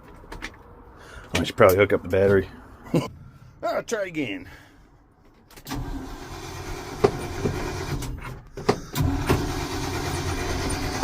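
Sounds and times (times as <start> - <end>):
starter cranking truck engine: 5.5 - 11.0.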